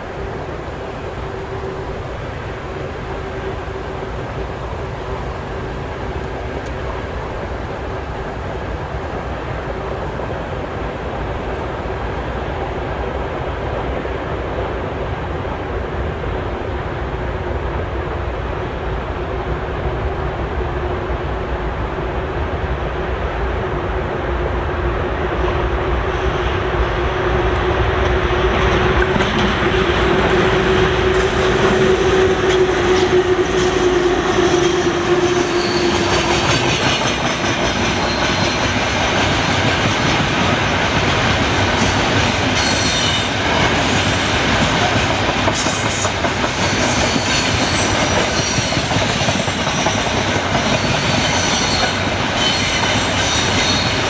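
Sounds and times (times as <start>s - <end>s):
electric locomotive humming: 0.0s - 54.0s
high-pitched wheel squeals: 32.6s - 36.3s.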